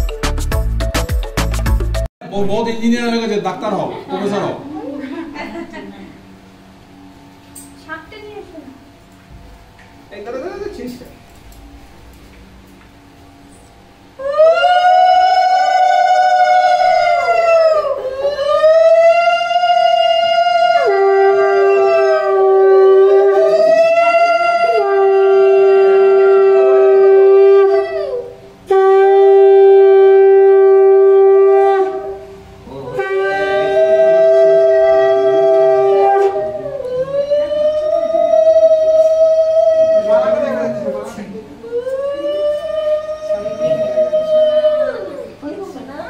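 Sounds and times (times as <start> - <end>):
conch shells blown: 11.3 - 40.4.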